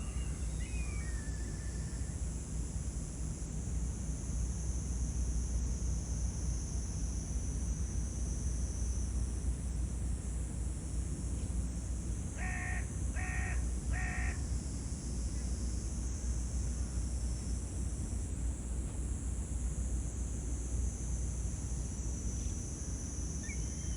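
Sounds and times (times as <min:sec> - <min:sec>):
crow cawing: 0:12.4 - 0:14.4.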